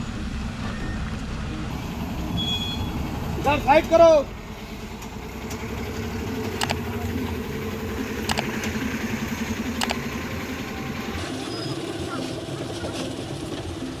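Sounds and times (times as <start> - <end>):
diesel truck engine running: 0.0 - 14.0
sharp clicks: 6.4 - 7.1, 8.2 - 9.0, 9.7 - 10.2.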